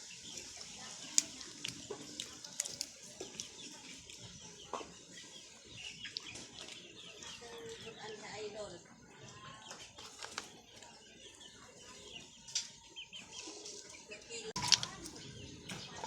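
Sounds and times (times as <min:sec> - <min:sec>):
clam shells and utensils clicking: 0:01.1 - 0:03.6, 0:14.6 - 0:15.2.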